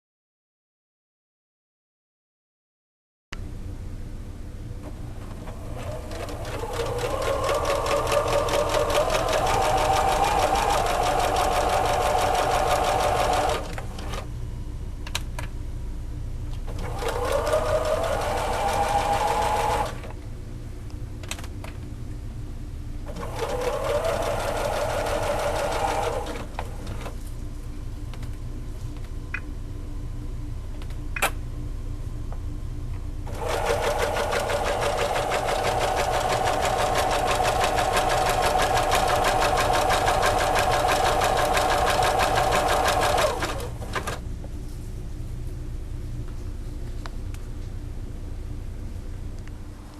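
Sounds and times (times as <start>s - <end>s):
steady low hum: 3.4s - 49.9s
sewing machine stitching: 5.3s - 14.3s, 16.7s - 20.2s, 23.1s - 27.2s, 33.3s - 44.2s.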